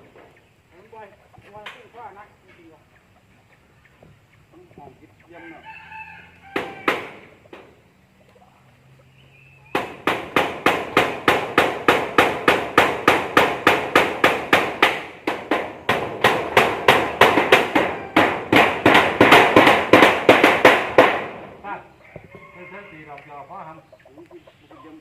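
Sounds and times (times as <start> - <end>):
rapid hammering: 9.7 - 21.5.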